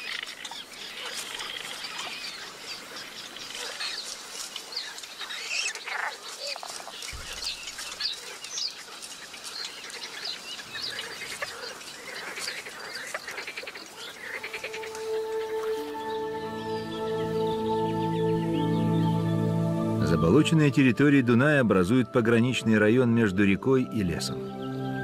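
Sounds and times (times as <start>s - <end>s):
rapid ticking bird trills: 0.0s - 17.6s
small birds chirping: 0.0s - 20.2s.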